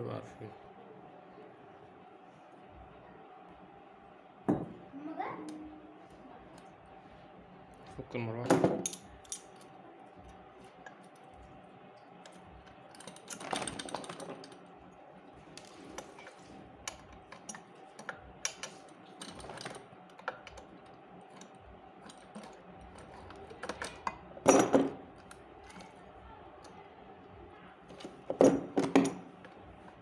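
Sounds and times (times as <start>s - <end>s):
hand tools and metal parts clicking: 8.4s - 26.8s, 27.9s - 30.0s
metal clatter: 12.3s - 14.7s.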